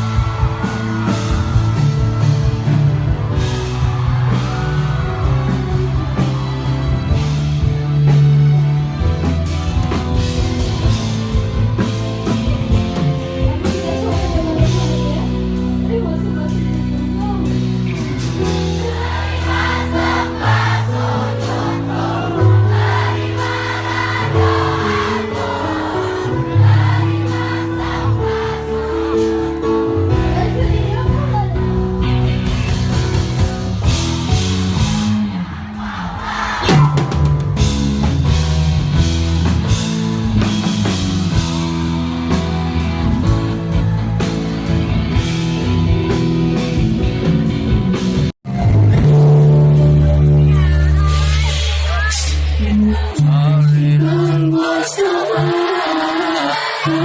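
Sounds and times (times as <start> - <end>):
live band music: 0.0 - 57.0
person singing: 48.5 - 57.0.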